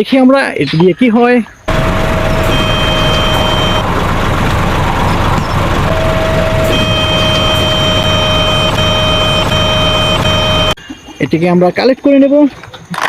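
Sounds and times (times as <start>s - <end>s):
thin steady tones: 1.7s - 10.8s
truck engine noise: 1.7s - 10.8s.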